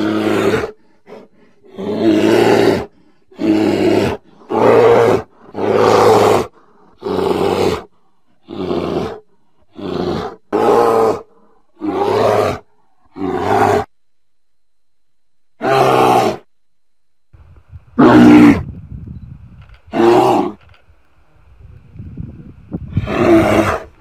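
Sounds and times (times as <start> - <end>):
bear roaring and growling: 0.0 - 13.9, 15.6 - 16.5, 18.0 - 18.8, 19.9 - 20.7, 22.2 - 24.0.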